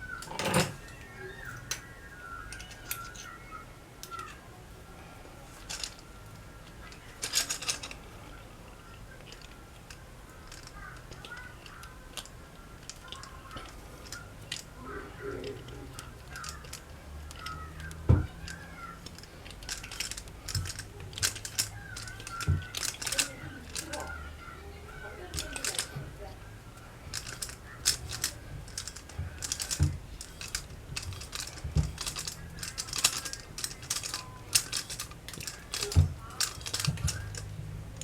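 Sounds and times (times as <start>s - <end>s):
metal tools clicking and knocking: 0.1s - 1.9s, 2.5s - 3.4s, 5.6s - 6.0s, 6.8s - 8.0s, 9.2s - 24.3s, 25.0s - 26.2s, 26.8s - 38.0s.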